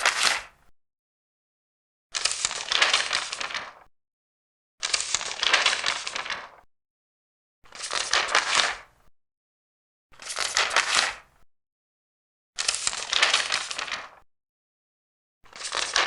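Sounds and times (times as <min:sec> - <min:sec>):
paper pages turning: 0:02.2 - 0:03.9, 0:04.8 - 0:06.6, 0:07.7 - 0:08.8, 0:12.6 - 0:14.2, 0:15.5 - 0:16.0.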